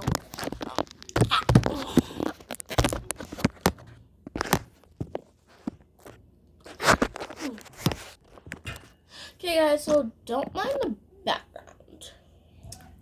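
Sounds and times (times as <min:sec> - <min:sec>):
crunching and chewing crust: 0:00.0 - 0:08.9.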